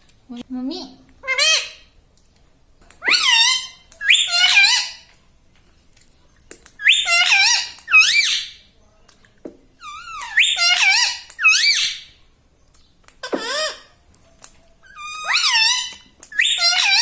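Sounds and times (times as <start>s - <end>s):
parrot squawking: 1.2s - 1.9s, 3.0s - 5.1s, 6.8s - 8.6s, 9.8s - 12.1s, 13.2s - 13.9s, 14.8s - 17.0s.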